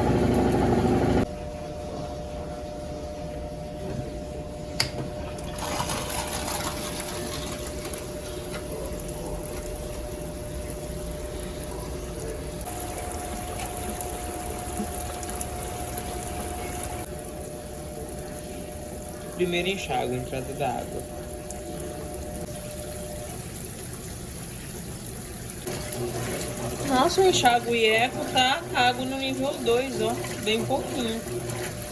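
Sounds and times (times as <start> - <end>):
washing machine humming: 0.0 - 31.9
water rushing through machine: 5.3 - 31.9.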